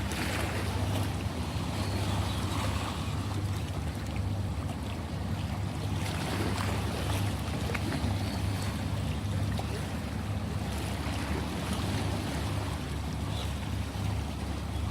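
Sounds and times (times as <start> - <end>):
ocean surf washing: 0.0 - 14.7
faint water ticks: 3.2 - 10.0.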